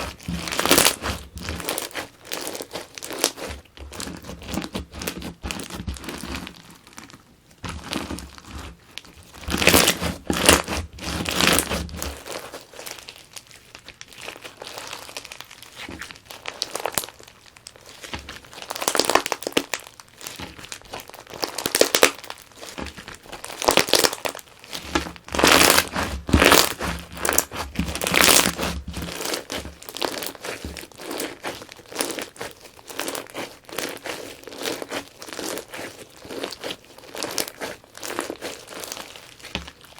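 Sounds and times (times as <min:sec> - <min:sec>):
crunchy slime squeezed by hand: 0:00.0 - 0:39.9.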